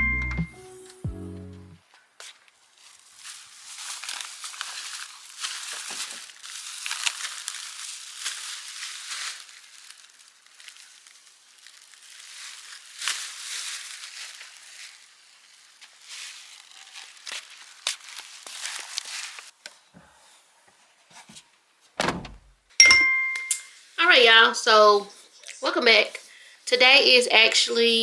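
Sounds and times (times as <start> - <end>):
crinkling handling noise: 2.8 - 19.5.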